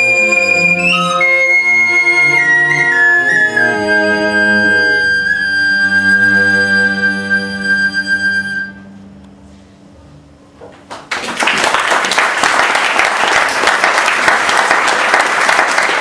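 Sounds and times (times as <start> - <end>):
flute and strings chord: 0.0 - 9.3
audience applause: 10.9 - 16.0.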